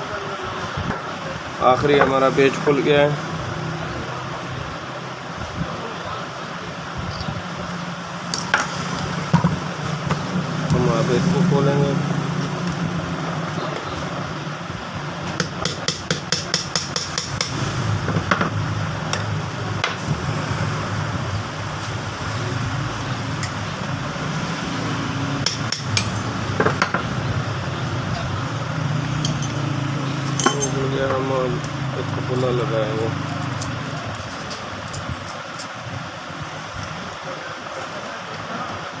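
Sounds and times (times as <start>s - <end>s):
tools knocking on metal: 25.4s - 27.1s.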